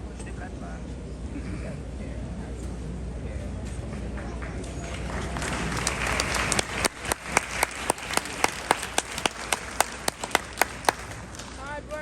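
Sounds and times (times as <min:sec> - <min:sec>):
hands clapping close by: 0:04.1 - 0:12.0
audience applauding: 0:04.2 - 0:11.8.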